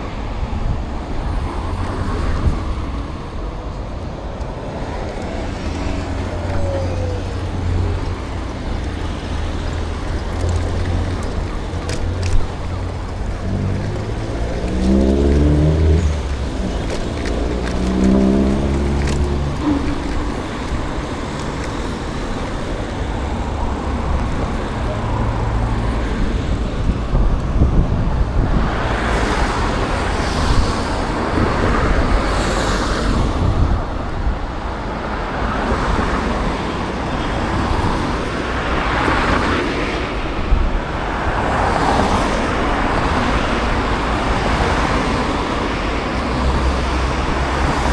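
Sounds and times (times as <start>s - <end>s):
cars passing: 0.0s - 47.9s
vehicle engine pulling away: 5.3s - 26.8s.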